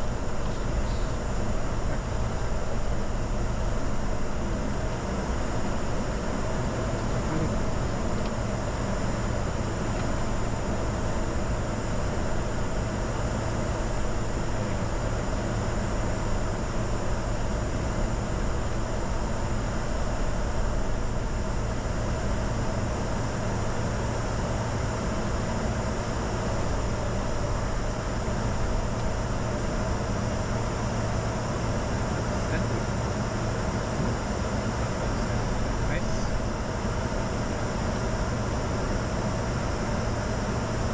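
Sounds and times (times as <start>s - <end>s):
jet cockpit engine noise: 0.0s - 40.9s.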